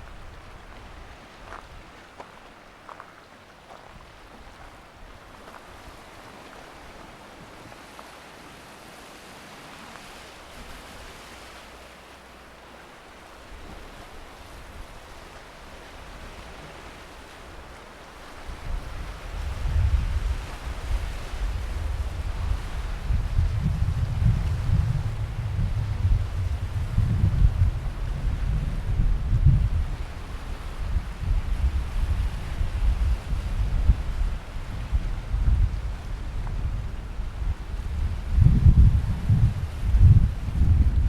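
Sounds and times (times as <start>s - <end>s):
wind buffeting microphone: 0.0s - 2.0s, 18.4s - 41.0s
surf washing onto beach: 3.7s - 41.0s.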